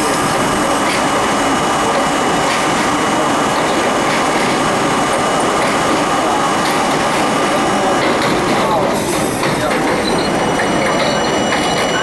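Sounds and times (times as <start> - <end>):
subway train rumbling on rails: 0.0 - 12.0.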